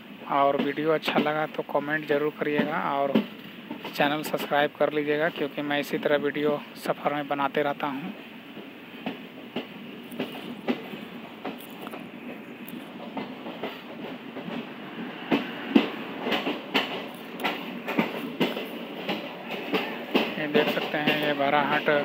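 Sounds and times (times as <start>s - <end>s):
train rumble: 0.0s - 22.0s
wheel clacks over rail joints: 0.5s - 4.6s, 8.6s - 22.0s.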